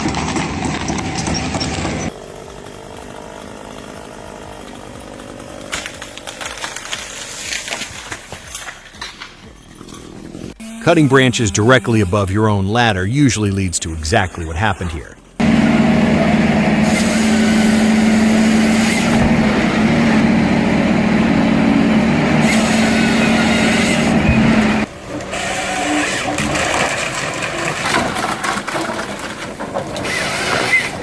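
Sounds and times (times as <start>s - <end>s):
engine running loudly: 0.0s - 6.9s, 15.3s - 25.3s
rattling machine noise: 15.4s - 31.0s.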